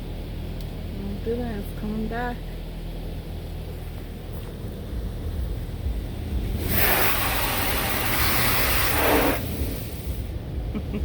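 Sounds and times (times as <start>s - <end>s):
car wash water jets hissing: 0.0s - 11.0s
low rumble of wash machinery: 0.0s - 11.0s.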